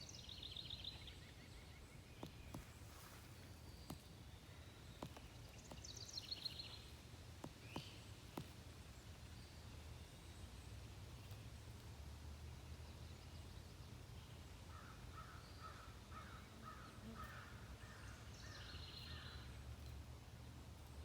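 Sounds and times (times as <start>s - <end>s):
songbird trills: 0.0s - 21.0s
woodpecker knocking on wood: 2.1s - 8.7s.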